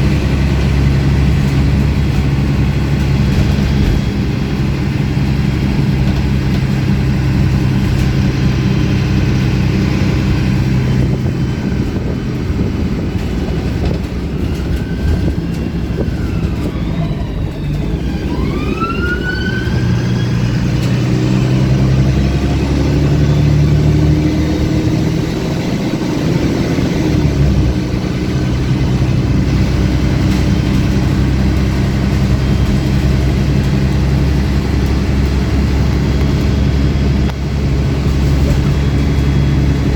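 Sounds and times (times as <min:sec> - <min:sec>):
bus diesel engine running: 0:00.0 - 0:39.9
rising and falling whistling tones: 0:14.5 - 0:26.3, 0:38.5 - 0:39.9.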